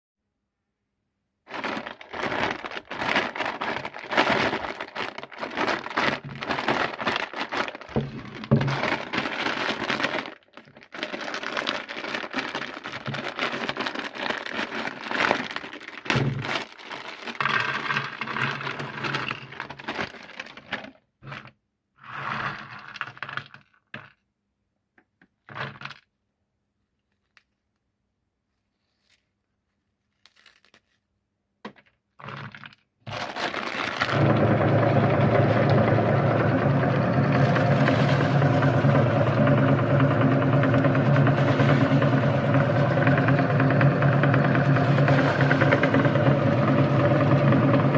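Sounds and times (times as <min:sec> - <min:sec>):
corn puffs crunching in grinder: 0:01.5 - 0:24.1, 0:32.2 - 0:47.9.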